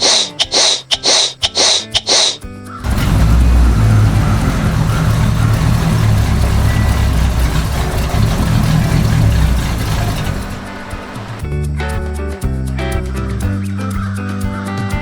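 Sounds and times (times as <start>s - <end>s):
engine low rumble: 2.8s - 13.6s.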